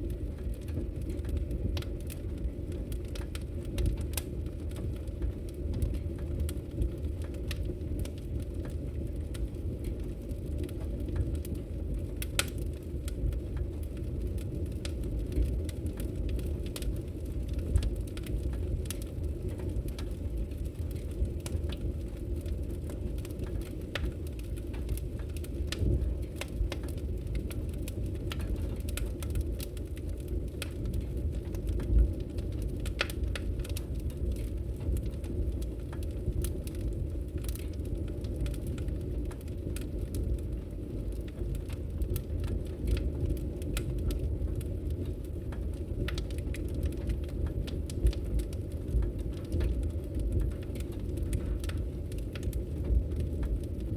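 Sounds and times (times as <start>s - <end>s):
fire crackling and popping: 0.0s - 53.9s
low rumble of fire: 0.0s - 53.9s.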